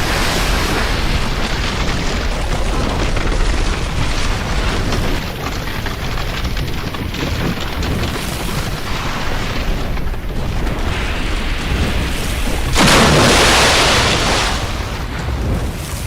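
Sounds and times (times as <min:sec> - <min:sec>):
low rumble of surf: 0:00.0 - 0:16.0
breaking wave rushing: 0:10.8 - 0:15.7.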